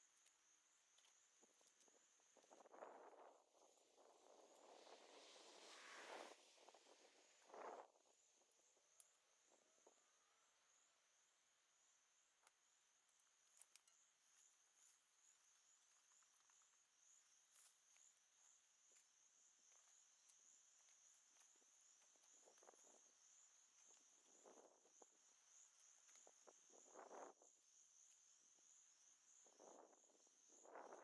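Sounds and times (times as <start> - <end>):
faint insects trilling: 0.0 - 31.0.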